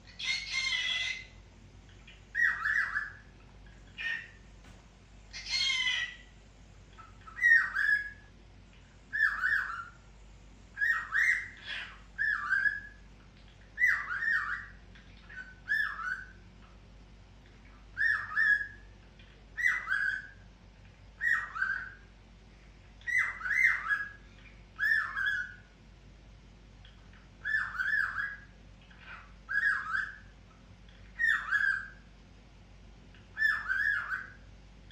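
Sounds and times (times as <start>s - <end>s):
cockatiel calls: 0.1s - 4.4s, 5.3s - 6.3s, 6.9s - 8.3s, 9.1s - 10.0s, 10.8s - 13.0s, 13.6s - 16.8s, 17.8s - 20.4s, 21.2s - 22.1s, 23.0s - 25.7s, 26.8s - 30.3s, 31.1s - 32.1s, 33.3s - 34.5s
cockatiel harsh screeches: 0.2s - 1.3s, 5.3s - 6.3s.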